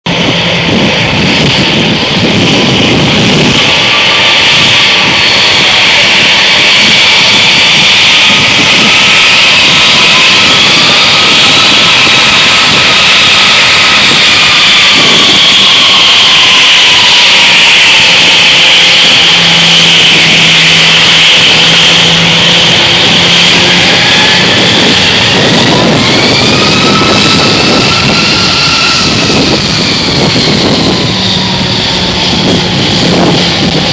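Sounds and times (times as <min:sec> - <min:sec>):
jet engines roaring: 0:00.0 - 0:33.9
high whining engine tones: 0:00.1 - 0:33.9.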